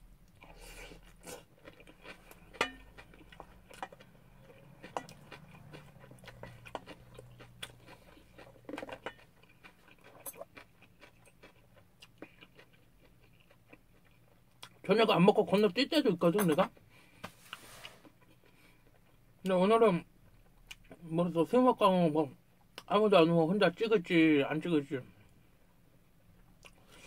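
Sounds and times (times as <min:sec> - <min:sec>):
person chewing: 0:00.2 - 0:14.8, 0:17.5 - 0:19.3, 0:26.5 - 0:27.0.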